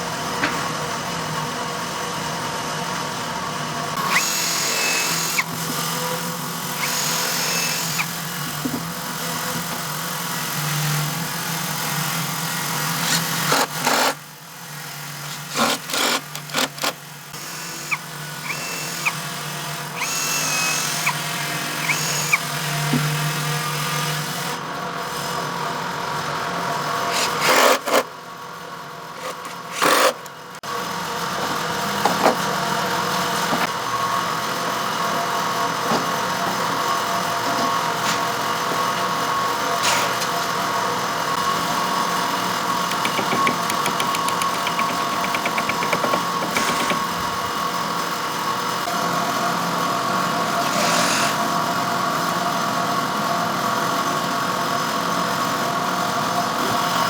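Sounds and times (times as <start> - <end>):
motor humming: 3.9 - 9.7, 14.9 - 23.8, 41.3 - 47.8.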